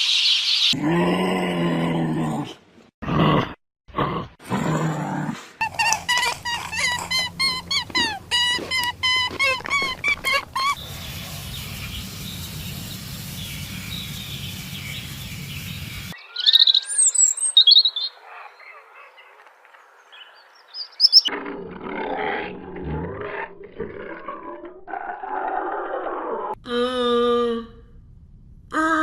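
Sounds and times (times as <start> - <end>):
loud high animal chirps: 5.8 - 18.8, 20.7 - 21.3.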